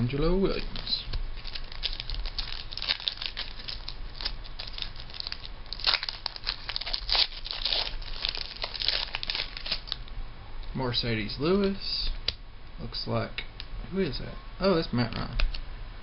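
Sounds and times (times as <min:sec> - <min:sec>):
foil wrapper crinkling and tearing: 0:00.4 - 0:10.0.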